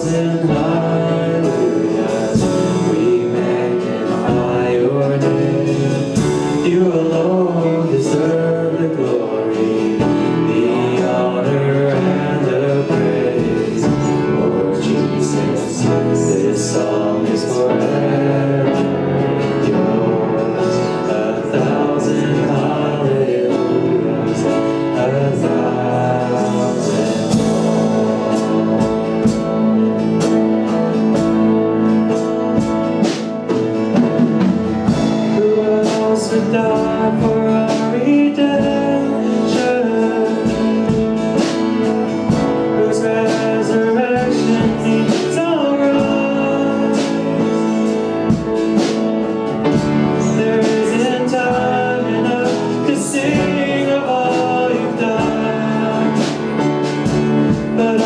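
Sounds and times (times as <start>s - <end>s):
guitar: 0.0s - 58.0s
people singing: 0.0s - 58.0s
worship band playing: 0.0s - 58.0s.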